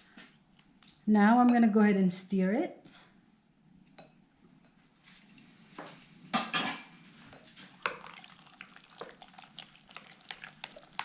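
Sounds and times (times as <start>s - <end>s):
utensil stirring in a bowl: 7.4s - 11.0s.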